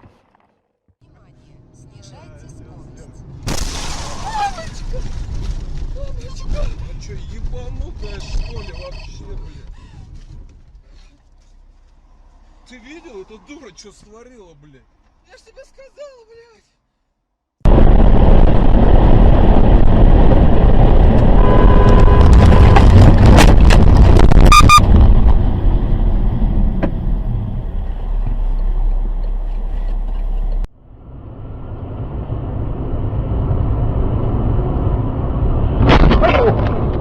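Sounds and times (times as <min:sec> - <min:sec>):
vehicle road and engine noise: 0:00.9 - 0:16.5, 0:17.7 - 0:37.0
short steady tone: 0:24.5 - 0:24.8.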